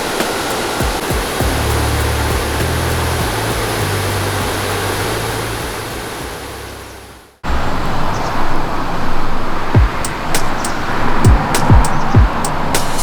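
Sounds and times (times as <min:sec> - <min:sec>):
heavy rushing water: 0:00.0 - 0:13.0.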